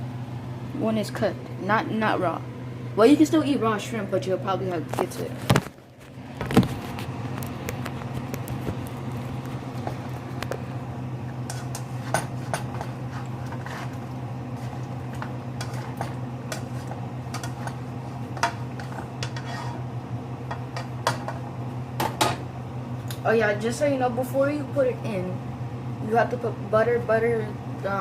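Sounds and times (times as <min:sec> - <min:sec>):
low fan hum: 0:00.0 - 0:28.0
pan and utensils clicking: 0:15.2 - 0:17.8.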